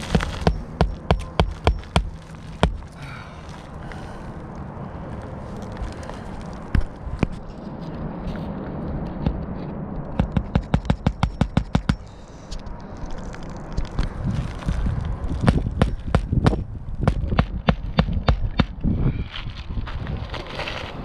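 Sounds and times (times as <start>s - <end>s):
hammer tapping nail into shingle: 0.1s - 2.8s, 10.2s - 12.1s.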